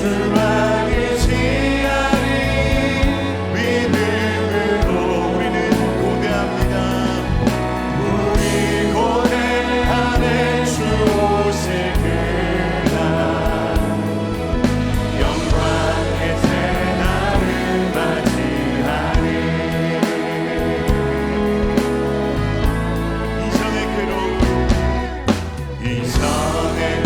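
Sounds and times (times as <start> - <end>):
bass notes: 0.0 - 27.0
group singing a worship song: 0.0 - 27.0.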